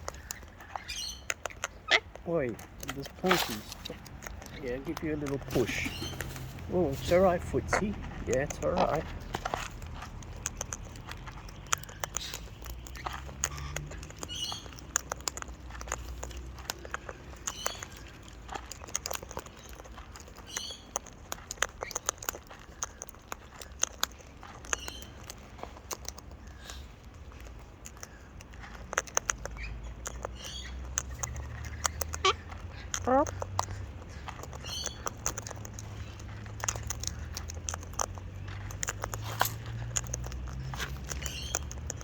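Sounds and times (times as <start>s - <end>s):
high bird chirps: 0.0s - 2.1s, 5.8s - 6.4s, 11.4s - 14.8s, 20.5s - 20.9s, 29.6s - 32.4s, 34.6s - 35.0s, 41.2s - 41.8s
cockatoo cracking seed: 0.0s - 42.0s.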